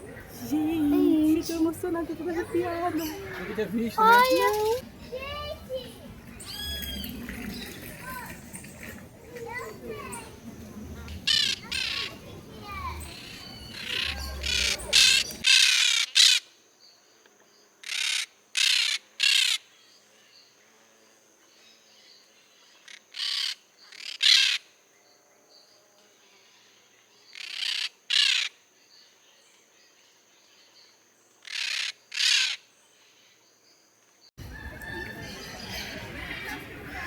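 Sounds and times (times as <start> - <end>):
toucan croaking calls: 1.4 - 4.8, 11.1 - 12.2, 13.0 - 16.5, 27.3 - 28.6, 31.4 - 32.7.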